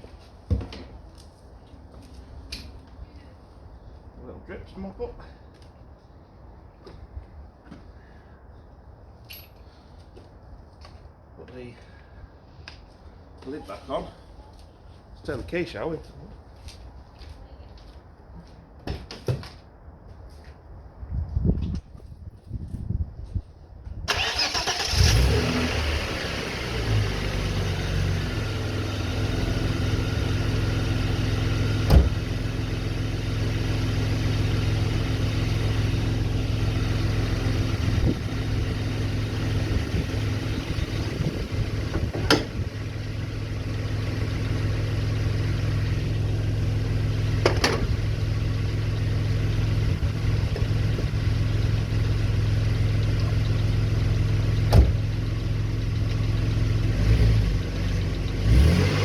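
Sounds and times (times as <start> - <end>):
car engine idling: 24.1 - 58.8
sharp engine knocks: 31.9 - 32.2, 41.9 - 42.6, 47.4 - 48.0, 54.7 - 55.0.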